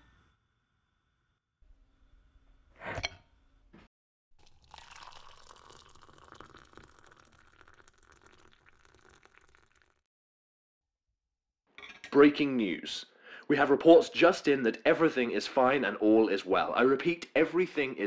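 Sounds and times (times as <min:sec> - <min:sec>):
water pouring into a ceramic mug: 0:04.4 - 0:10.1.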